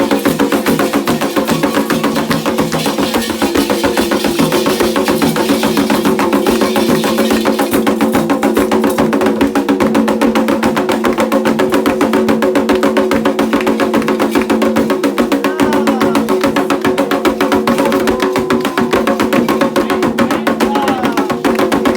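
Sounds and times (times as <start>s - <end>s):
hand drums fast rhythm: 0.0s - 21.9s
sharp clacking beat: 0.0s - 21.9s.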